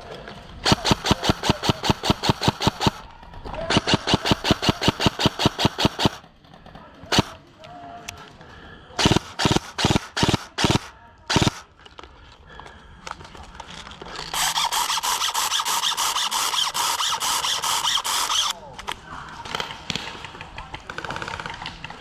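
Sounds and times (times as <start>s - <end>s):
electric gun firing full-auto: 0.6s - 6.3s, 7.1s - 7.4s, 9.0s - 11.7s, 14.4s - 18.6s.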